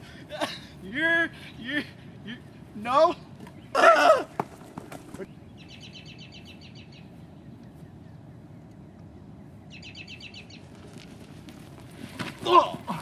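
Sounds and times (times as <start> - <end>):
low outdoor background noise: 0.0 - 13.0
songbird trilling: 5.2 - 10.7.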